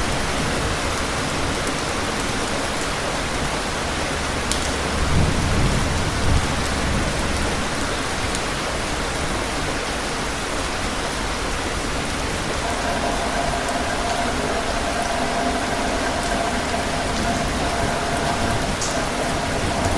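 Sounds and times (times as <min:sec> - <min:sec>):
rain pattering: 0:00.0 - 0:19.9
faint steady tone: 0:12.6 - 0:19.9.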